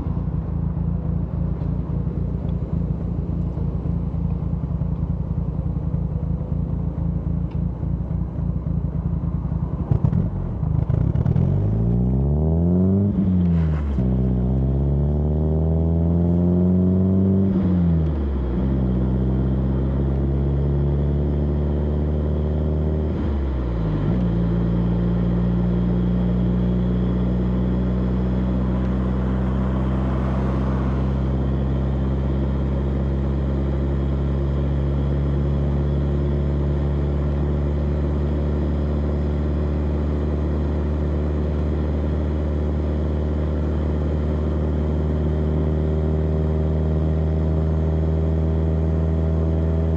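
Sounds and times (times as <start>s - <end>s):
car engine exhaust revving: 9.7s - 42.2s.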